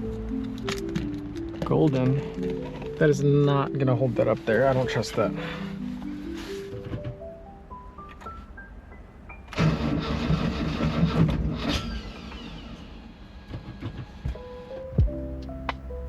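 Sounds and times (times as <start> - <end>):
engine starter cranking: 9.5 - 14.5
stepped music notes: 14.4 - 16.0.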